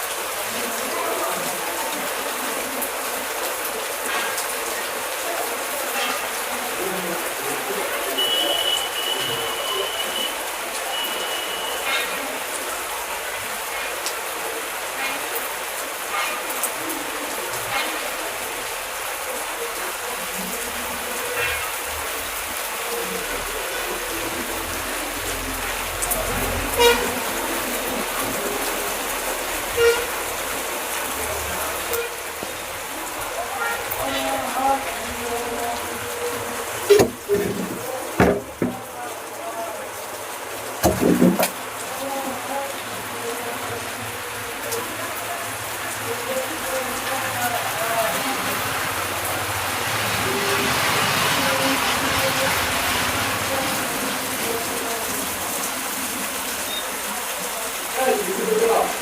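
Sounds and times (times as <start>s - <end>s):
heavy rain falling: 0.0s - 59.0s
vehicle horn toot: 8.0s - 12.2s, 26.8s - 27.2s, 29.8s - 30.1s.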